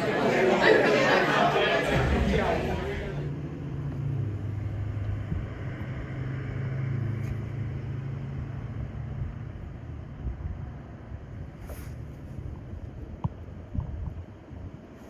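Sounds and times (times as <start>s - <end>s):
motor vehicle running: 1.9s - 12.8s.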